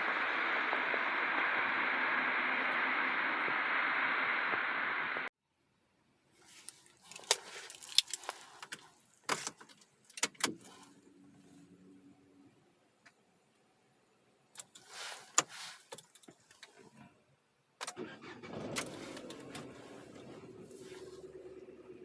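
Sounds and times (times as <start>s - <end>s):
car engine running: 0.0s - 5.3s, 18.0s - 22.0s.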